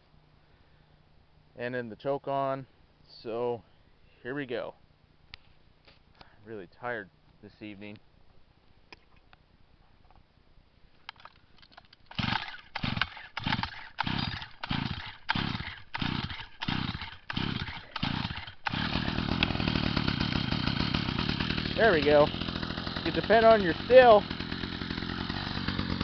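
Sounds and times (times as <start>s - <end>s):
tiller engine starting and running: 12.1s - 26.0s.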